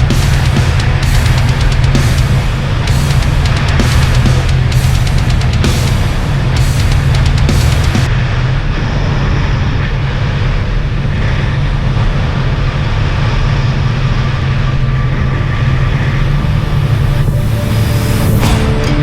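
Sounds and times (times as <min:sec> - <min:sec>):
jet ski engine running: 0:09.4 - 0:18.5.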